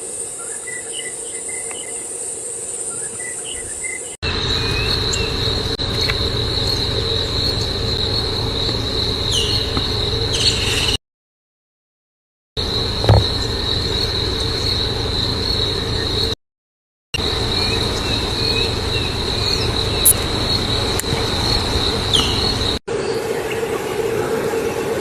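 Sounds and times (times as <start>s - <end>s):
high-pitched insect chorus: 0.0s - 11.0s, 12.6s - 16.4s, 17.2s - 25.0s
low background rumble: 4.2s - 11.0s, 12.6s - 16.4s, 17.2s - 22.8s
short low thump: 13.0s - 13.6s.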